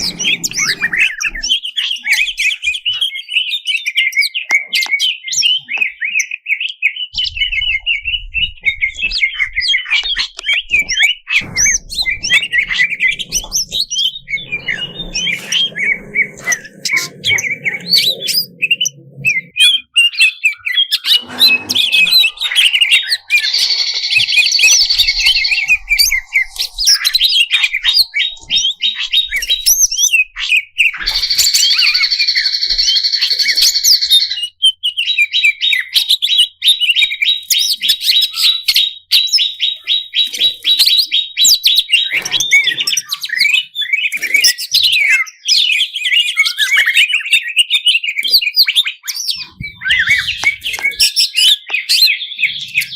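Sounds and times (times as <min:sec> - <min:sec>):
songbird singing: 0:00.0 - 0:52.9.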